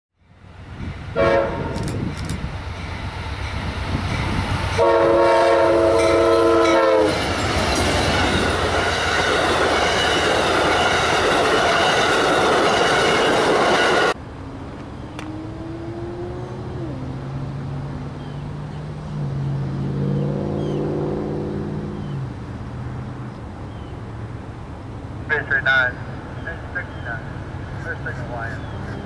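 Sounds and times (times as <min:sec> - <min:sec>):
train rolling past: 0:00.2 - 0:29.0
train horn blasts: 0:01.2 - 0:01.9, 0:04.8 - 0:07.2.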